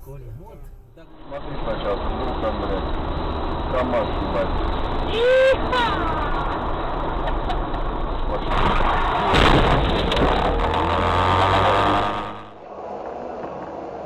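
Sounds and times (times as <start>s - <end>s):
vehicle road and engine noise: 0.0s - 14.0s
vehicle collision bang: 6.5s - 12.7s.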